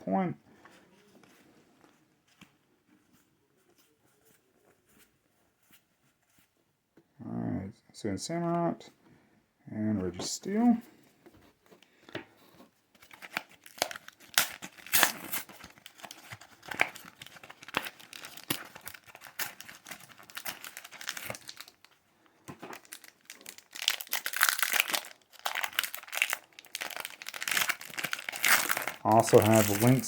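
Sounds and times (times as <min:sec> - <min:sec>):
packaging crinkling and tearing: 0:13.0 - 0:30.0.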